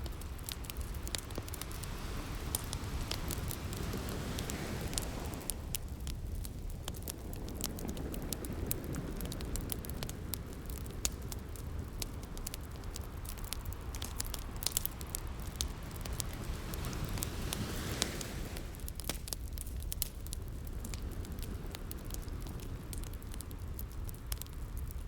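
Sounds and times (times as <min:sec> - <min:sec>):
ocean waves: 0:00.0 - 0:18.9
wood fire crackling and popping: 0:00.0 - 0:25.0.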